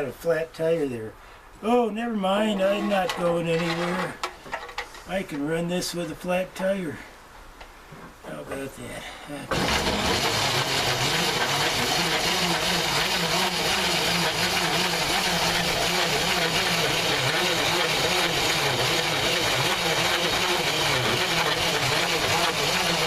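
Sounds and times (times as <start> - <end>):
corn grinder grinding: 2.6 - 4.2, 9.5 - 23.0.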